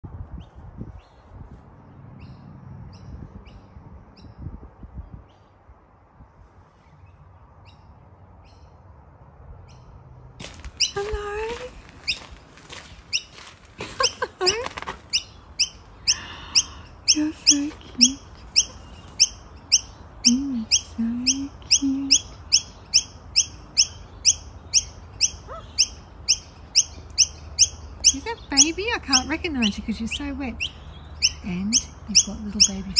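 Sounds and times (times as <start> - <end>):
bird chirping: 13.1 - 32.9.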